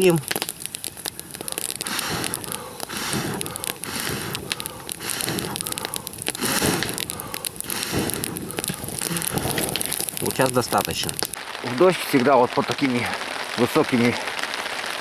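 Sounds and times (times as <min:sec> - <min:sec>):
person blowing on a campfire: 0:00.0 - 0:11.4
kindling crackling: 0:00.0 - 0:15.0.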